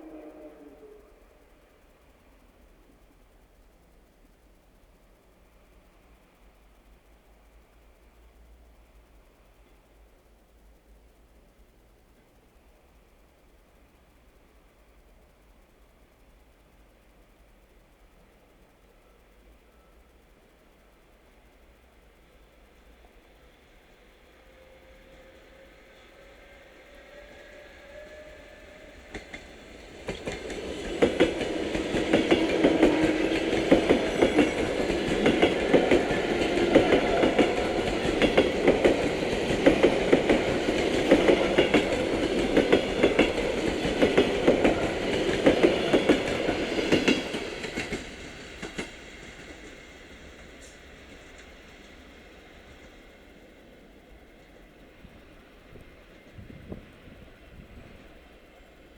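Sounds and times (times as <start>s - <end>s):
electric train passing: 0.0s - 58.9s
wheels clicking over rail joints: 28.7s - 52.0s.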